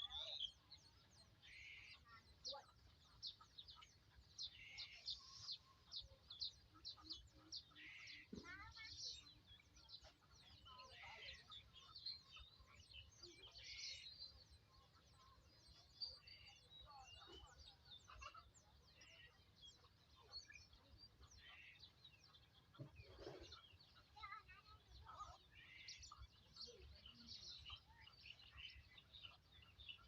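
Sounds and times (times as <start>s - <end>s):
faint bird chirps: 0.0s - 30.0s
scratchy clucking bird calls: 21.1s - 24.5s.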